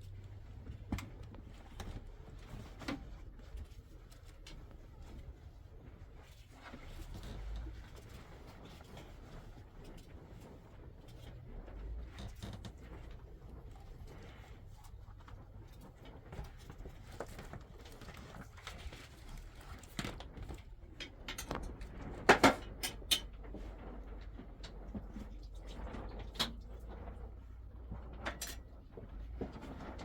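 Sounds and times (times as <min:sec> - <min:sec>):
knocks and clatters of handling: 0:00.0 - 0:30.0
low steady background hum: 0:00.0 - 0:30.0.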